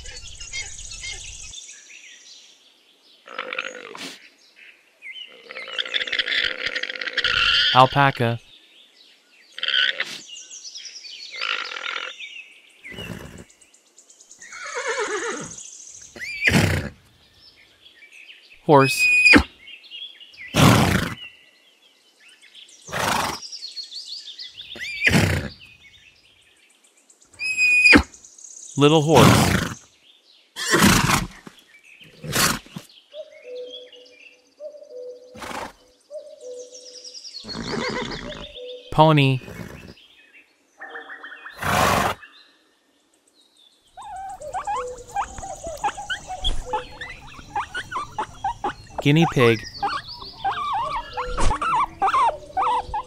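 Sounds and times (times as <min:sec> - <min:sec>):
birds chirping: 0:00.0 - 0:53.0
horse whinnying: 0:05.6 - 0:07.8, 0:12.9 - 0:13.5, 0:14.5 - 0:17.0, 0:18.9 - 0:19.5, 0:20.6 - 0:21.2, 0:22.9 - 0:23.4, 0:24.8 - 0:25.6, 0:27.4 - 0:28.1, 0:29.2 - 0:29.8, 0:30.6 - 0:31.4, 0:32.1 - 0:32.8, 0:35.4 - 0:35.8, 0:37.4 - 0:38.6, 0:39.4 - 0:40.0, 0:41.6 - 0:42.2, 0:44.0 - 0:53.0.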